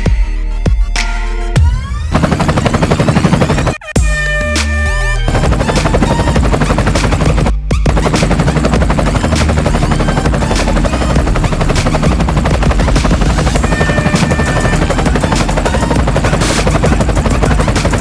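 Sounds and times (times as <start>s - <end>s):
helicopter rotor chop: 1.6s - 3.8s, 4.6s - 18.0s
low drone: 8.2s - 18.0s.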